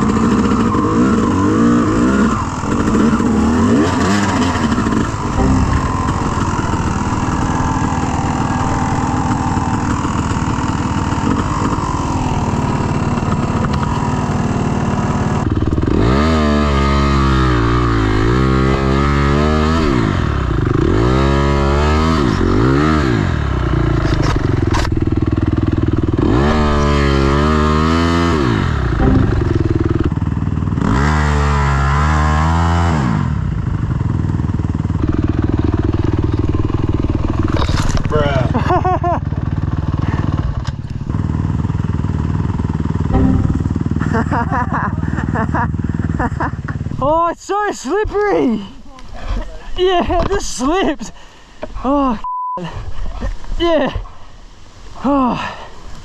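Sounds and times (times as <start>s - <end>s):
dirt bike engine revving: 0.0s - 23.7s, 25.2s - 33.2s, 43.1s - 44.6s.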